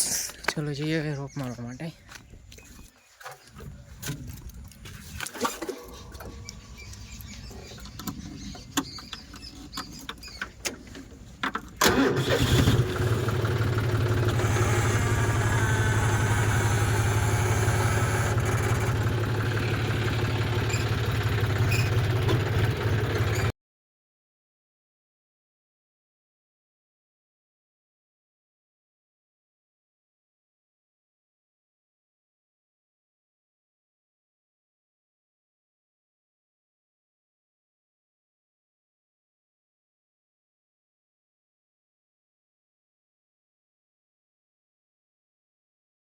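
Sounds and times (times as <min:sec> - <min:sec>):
tractor engine starting and running: 0:04.0 - 0:23.5.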